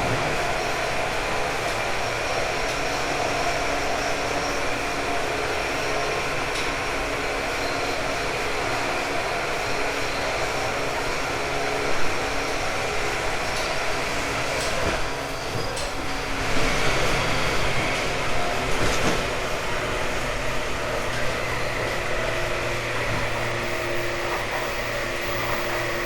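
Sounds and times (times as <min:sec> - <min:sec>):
train rumble and rail noise: 0:00.0 - 0:26.0
motor whining tones: 0:20.9 - 0:26.0.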